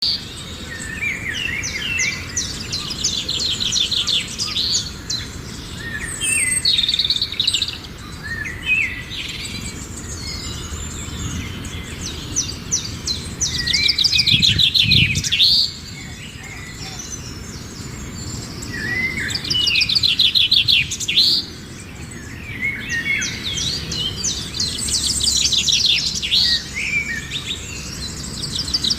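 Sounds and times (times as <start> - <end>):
songbirds chirping and trilling: 0.0 - 28.9.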